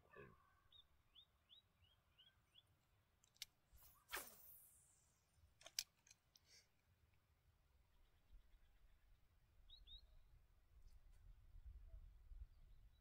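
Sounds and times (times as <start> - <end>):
faint bird chirps: 0.0 - 2.8, 7.8 - 10.4
brief swish: 3.8 - 5.1.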